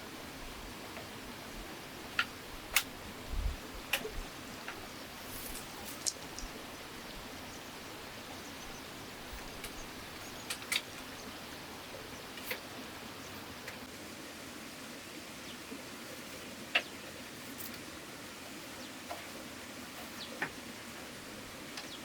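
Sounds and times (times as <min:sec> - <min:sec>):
faint steady hiss: 0:00.0 - 0:22.0
sharp clicks and taps: 0:05.5 - 0:06.6.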